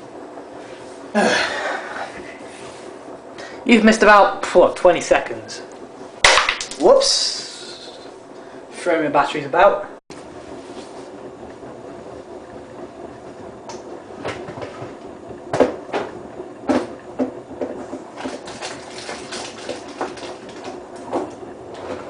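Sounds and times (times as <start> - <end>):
washing machine motor hum: 0.0 - 22.0
knocks and sloshes of tumbling load: 13.9 - 22.0.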